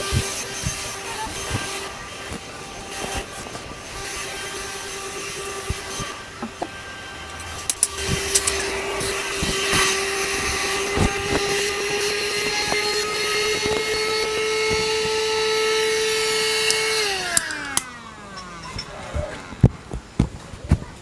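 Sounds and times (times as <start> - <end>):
electric air pump whine: 0.0 - 20.4
knocks and clicks: 6.4 - 9.1.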